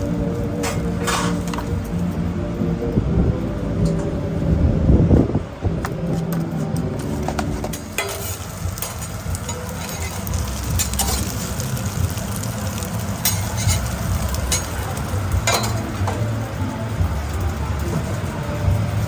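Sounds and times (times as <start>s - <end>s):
food sizzling on cooktop: 0.0s - 2.2s, 7.0s - 19.0s
steady low hum: 0.0s - 19.0s.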